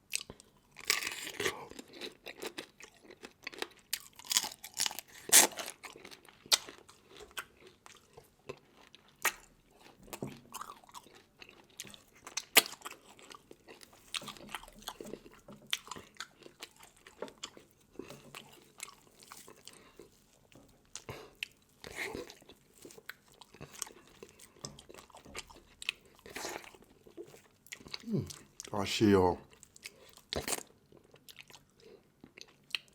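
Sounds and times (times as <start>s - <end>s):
wet chewing: 0.1s - 28.7s, 29.5s - 32.9s
crunching shell and bone: 0.8s - 7.8s.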